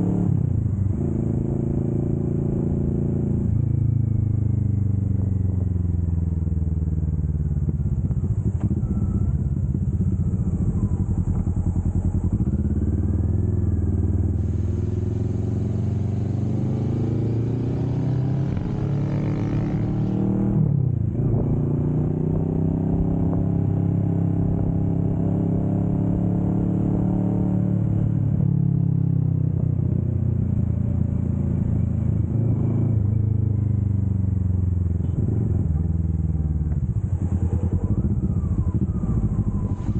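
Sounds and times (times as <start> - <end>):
wind and road noise: 0.0 - 39.9
motorcycle engine under load: 3.3 - 17.4.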